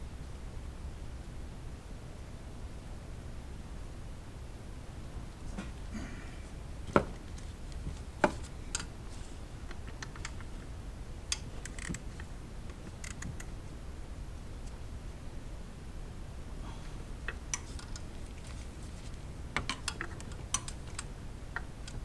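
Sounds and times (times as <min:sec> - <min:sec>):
clicks and metal ticks of tools: 0:07.7 - 0:08.9, 0:17.3 - 0:18.7, 0:19.6 - 0:22.0.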